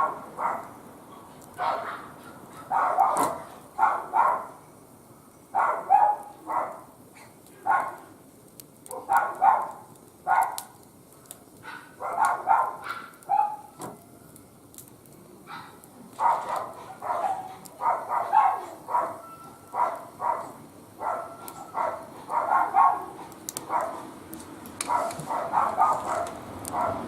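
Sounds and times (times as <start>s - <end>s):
dog barking: 0.0s - 4.6s, 5.6s - 6.9s, 7.6s - 8.1s, 8.9s - 10.8s, 11.6s - 13.8s, 15.5s - 24.1s, 24.9s - 27.0s
wood fire crackling: 0.0s - 27.0s.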